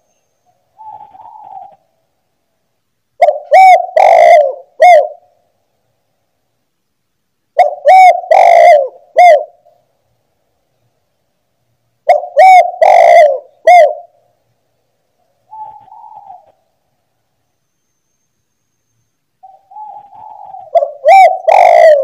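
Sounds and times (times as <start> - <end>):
dove cooing: 0.7 - 1.9, 3.2 - 5.3, 7.6 - 9.7, 12.0 - 14.2, 15.5 - 16.6, 19.4 - 22.0.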